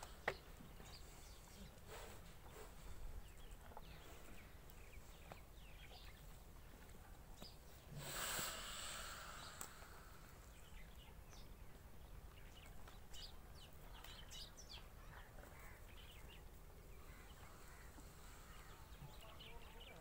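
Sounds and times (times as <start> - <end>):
faint bird chirps: 12.4 - 20.0.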